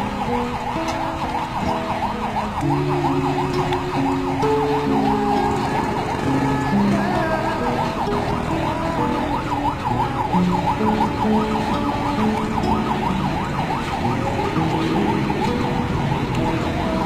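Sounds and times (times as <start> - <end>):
lower held siren tones: 0.0 - 17.0
siren yelping: 0.0 - 17.0.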